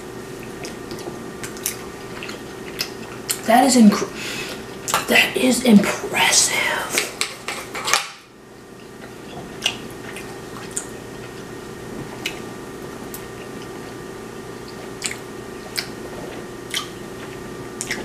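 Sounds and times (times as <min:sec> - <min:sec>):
steady low hum: 0:00.0 - 0:18.0
person chewing: 0:00.4 - 0:03.5, 0:08.8 - 0:18.0.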